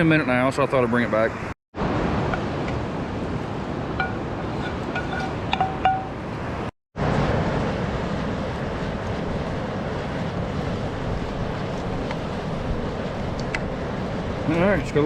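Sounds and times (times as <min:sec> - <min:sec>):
short metallic rings: 0:04.0 - 0:06.2.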